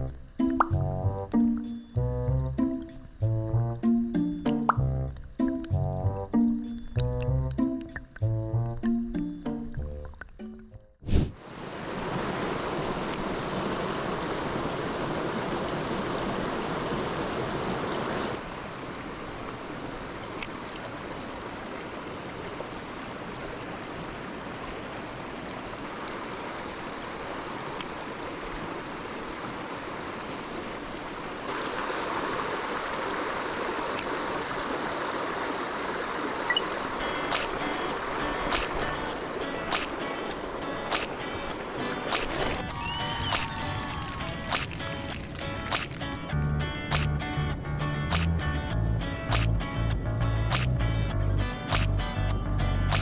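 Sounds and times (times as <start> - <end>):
stream flowing over rocks: 11.4 - 46.4.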